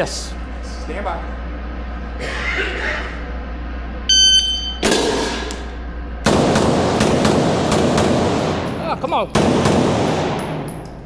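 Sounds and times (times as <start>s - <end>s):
shot timer beep: 4.1s - 4.8s
pistol shots: 6.3s - 8.8s, 9.4s - 10.8s.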